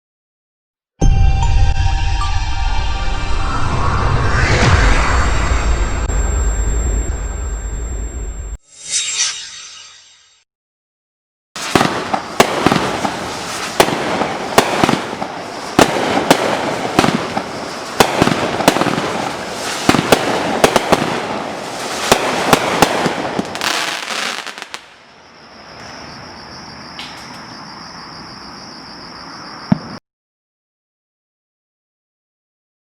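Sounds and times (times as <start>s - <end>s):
fireworks cake bangs: 11.6s - 24.8s
fireworks crackling: 11.6s - 25.1s
insects trilling: 23.8s - 30.0s.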